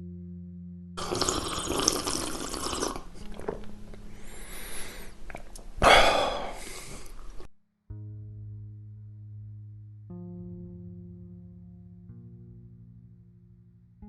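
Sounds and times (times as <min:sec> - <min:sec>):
low steady hum: 0:00.0 - 0:07.5.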